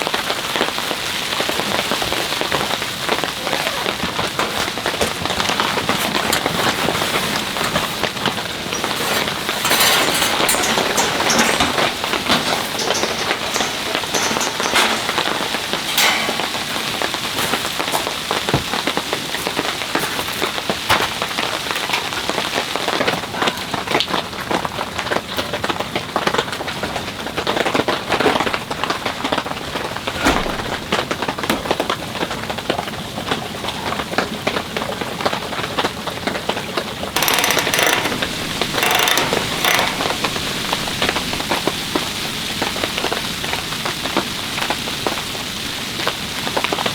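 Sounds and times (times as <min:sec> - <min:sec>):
rain pouring: 0:00.0 - 0:26.0, 0:37.3 - 0:46.9.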